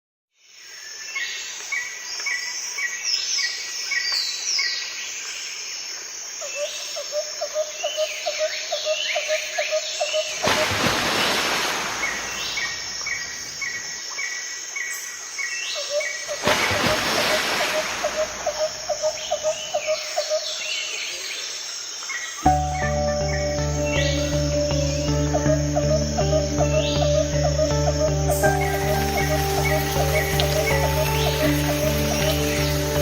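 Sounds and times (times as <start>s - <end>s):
birds singing and calling: 6.5s - 33.0s
rapid low bird notes: 22.5s - 33.0s.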